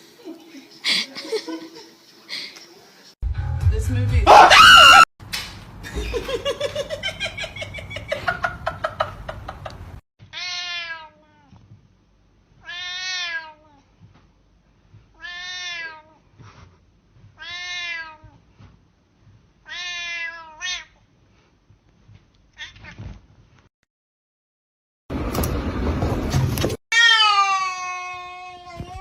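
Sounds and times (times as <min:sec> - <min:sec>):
cat meowing: 0:10.4 - 0:11.6, 0:12.6 - 0:13.8, 0:15.2 - 0:16.2, 0:17.4 - 0:18.3, 0:19.7 - 0:21.0, 0:26.9 - 0:29.0.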